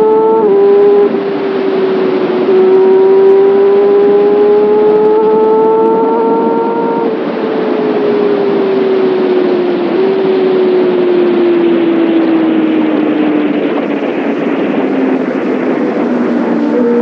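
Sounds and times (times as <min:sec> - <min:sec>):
motorcycle engine at high revs: 0:00.0 - 0:17.0
wind rush: 0:00.0 - 0:17.0.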